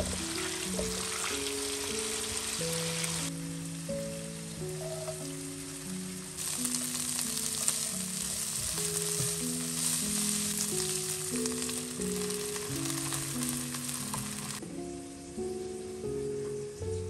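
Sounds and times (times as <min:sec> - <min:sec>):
vegetables sizzling in a pan: 0:00.0 - 0:14.6.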